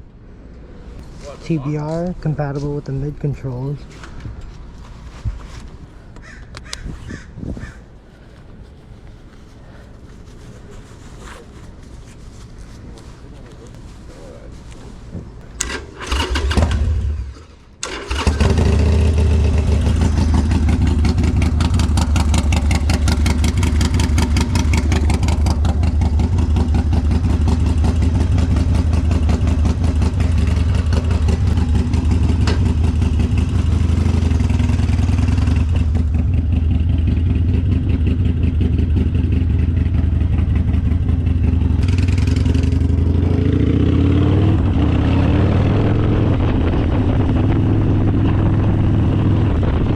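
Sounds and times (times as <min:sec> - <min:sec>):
motorcycle electric starter cranking: 0:15.6 - 0:19.3
motorcycle engine running: 0:18.1 - 0:49.9.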